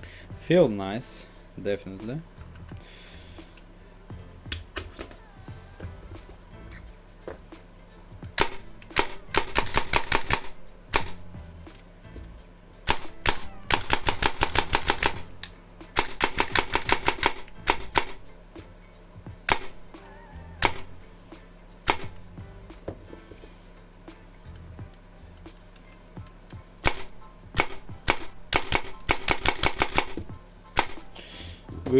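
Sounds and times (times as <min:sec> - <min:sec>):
airsoft gun firing: 0:08.3 - 0:11.4, 0:12.8 - 0:18.3, 0:19.4 - 0:20.0, 0:20.6 - 0:21.0, 0:21.8 - 0:22.3, 0:26.8 - 0:31.2.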